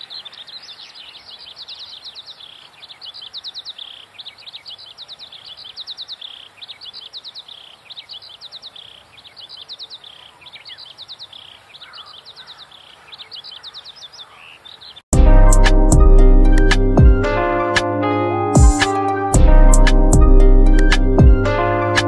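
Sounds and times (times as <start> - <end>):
small birds chirping: 0.0 - 15.1
loud music: 15.1 - 22.0.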